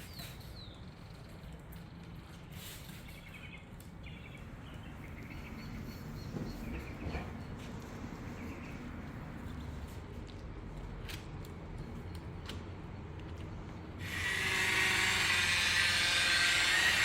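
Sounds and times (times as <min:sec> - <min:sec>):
small birds chirping: 0:02.8 - 0:08.9.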